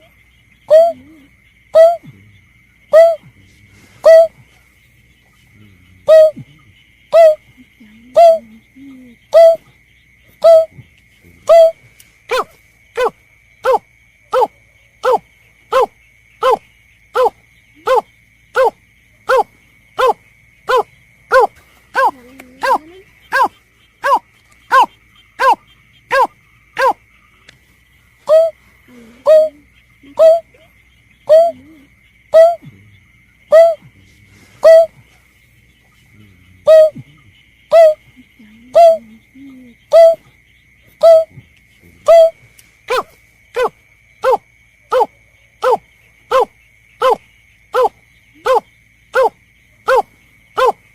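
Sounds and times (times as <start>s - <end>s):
snipe calling harsh kek: 34.6s - 34.9s.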